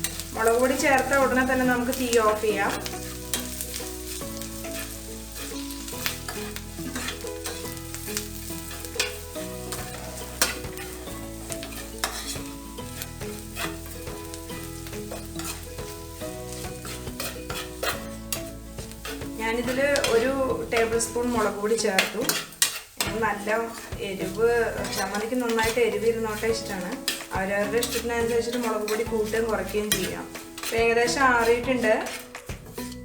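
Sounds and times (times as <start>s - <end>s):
onions sizzling in oil: 0.0s - 33.0s
spoon scraping and clicking on pan: 0.0s - 33.0s.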